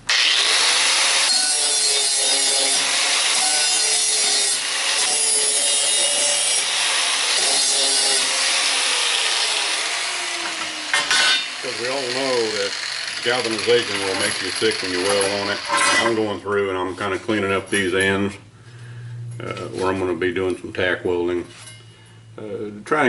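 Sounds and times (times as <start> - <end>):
power grinder grinding metal: 0.0 - 16.4.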